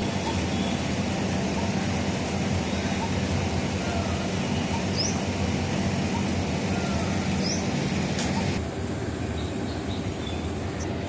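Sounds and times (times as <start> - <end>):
rumbling background noise: 0.0 - 11.0
high bird chirps: 2.6 - 5.3, 6.0 - 8.6.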